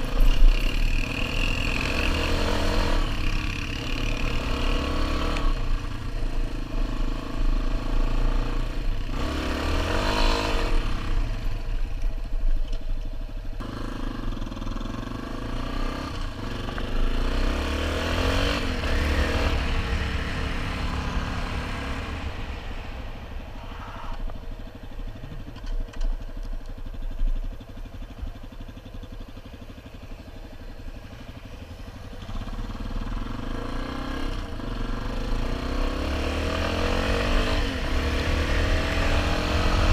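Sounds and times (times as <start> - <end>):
motorcycle engine revving: 0.0 - 12.1, 13.4 - 39.9.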